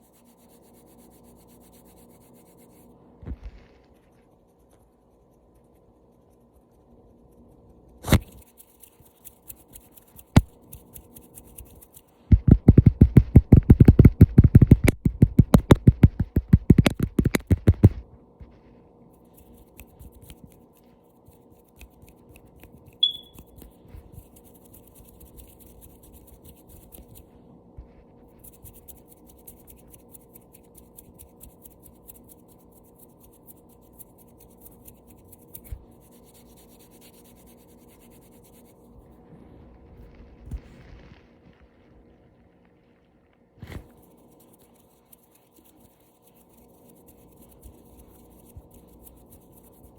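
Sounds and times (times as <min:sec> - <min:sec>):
light scratches: 0:00.0 - 0:49.9
fingertip tapping: 0:12.3 - 0:18.0.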